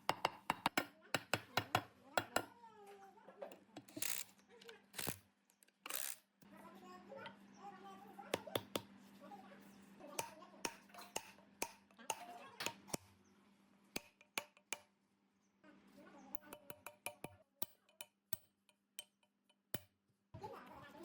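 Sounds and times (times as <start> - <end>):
clicks of hand tools and metal parts: 3.5 - 6.2.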